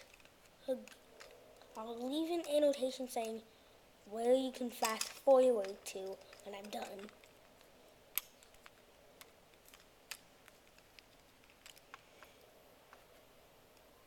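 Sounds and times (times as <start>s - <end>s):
plastic toy parts clicking: 0.0s - 1.8s, 4.7s - 12.4s.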